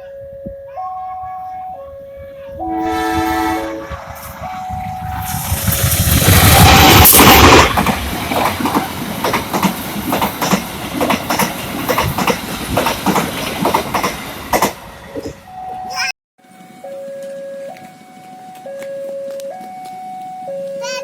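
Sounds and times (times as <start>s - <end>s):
passing train rumble: 1.4s - 16.0s
train wheels clickety-clack: 3.9s - 15.4s.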